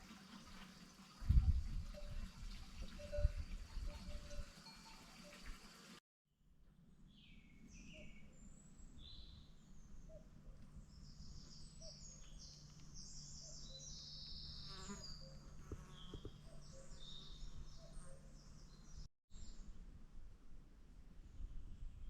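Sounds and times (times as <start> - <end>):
small birds chirping: 7.2 - 19.1
low insect buzz: 14.6 - 16.4.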